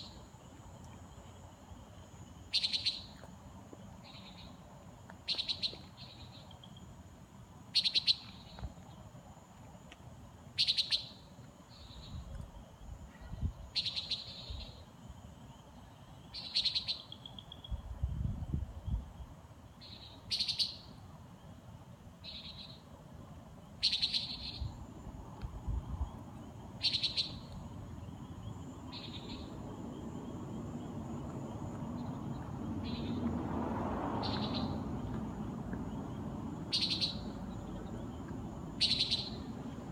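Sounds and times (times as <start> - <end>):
nighthawk calling: 23.8 - 24.6, 26.8 - 27.5, 36.7 - 37.3, 38.8 - 39.5.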